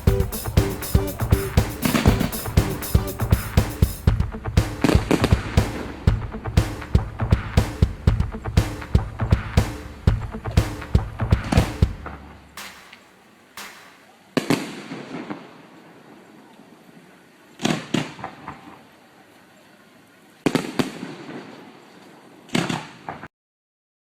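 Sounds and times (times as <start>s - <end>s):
fireworks bangs and crackle: 12.6s - 15.5s.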